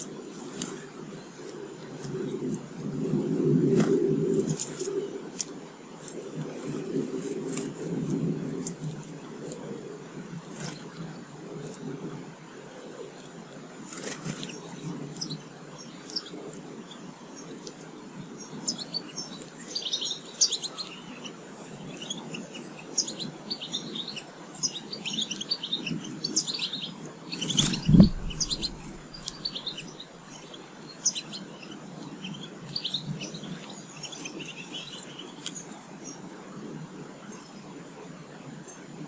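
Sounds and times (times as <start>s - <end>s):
birds chirping: 14.3s - 36.2s
low background rumble: 27.6s - 30.5s
loud thump: 27.8s - 29.0s.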